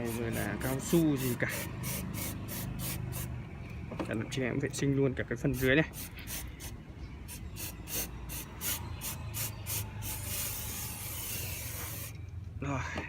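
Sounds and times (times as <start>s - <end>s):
aerosol spray hissing: 0.0s - 3.3s, 5.6s - 12.1s.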